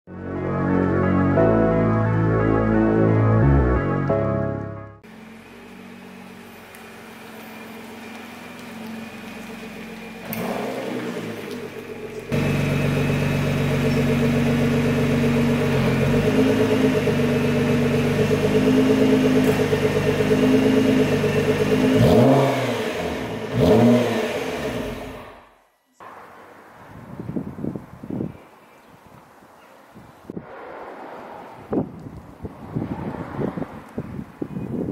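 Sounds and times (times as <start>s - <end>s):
car engine starting and idling: 1.4s - 26.2s.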